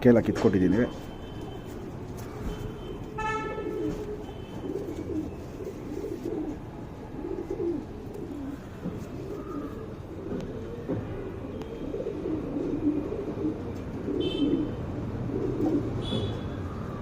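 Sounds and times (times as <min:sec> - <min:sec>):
pigeons cooing: 0:00.2 - 0:17.0.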